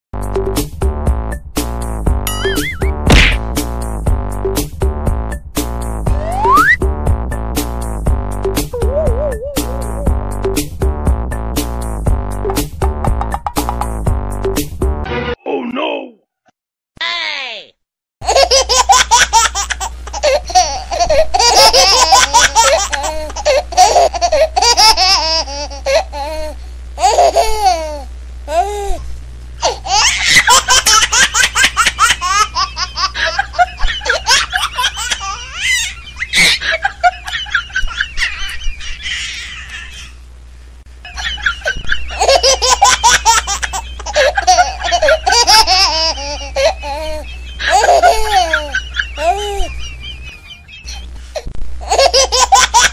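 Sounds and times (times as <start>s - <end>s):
steady low hum: 0.2s - 13.2s, 18.2s - 52.9s
laughter in choppy bursts: 8.8s - 10.1s, 18.3s - 26.1s, 29.6s - 40.2s, 41.0s - 52.9s.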